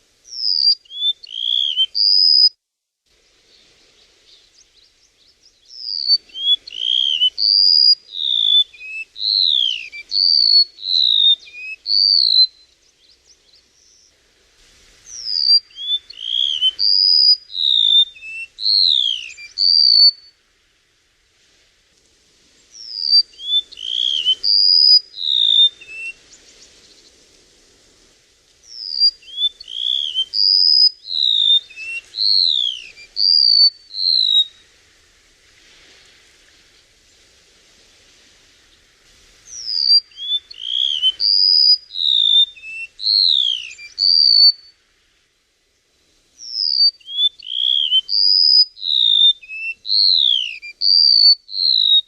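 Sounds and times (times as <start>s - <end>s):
songbird whistling: 0.3s - 2.5s, 5.6s - 14.1s, 15.1s - 20.3s, 22.7s - 26.3s, 28.7s - 34.6s, 39.5s - 44.8s, 46.4s - 52.0s.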